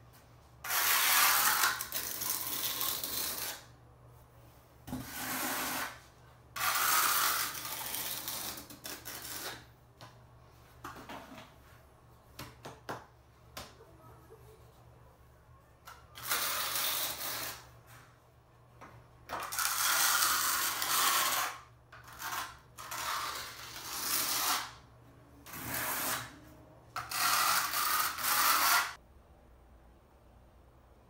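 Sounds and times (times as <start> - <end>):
trowel scraping mortar: 0.6 - 3.6, 5.0 - 6.0, 6.6 - 9.6, 19.4 - 24.8, 25.5 - 26.3, 27.0 - 29.0.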